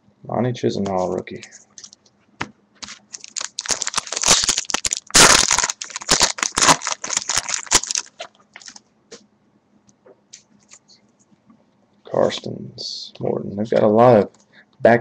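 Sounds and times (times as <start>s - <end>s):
card pack wrapper crinkling: 2.8s - 8.8s.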